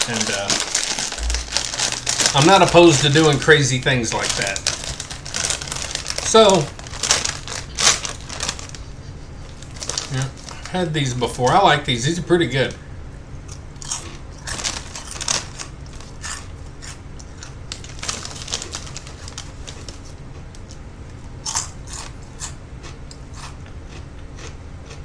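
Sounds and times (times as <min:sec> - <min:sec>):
chip bag crackle: 0:00.0 - 0:11.6, 0:13.8 - 0:20.2
crunchy snack chewing: 0:13.5 - 0:20.8, 0:21.4 - 0:25.0.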